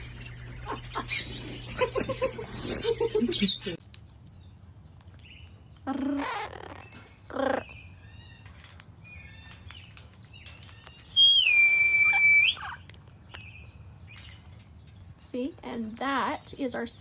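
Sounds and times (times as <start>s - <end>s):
harsh parrot calls: 5.8s - 8.4s.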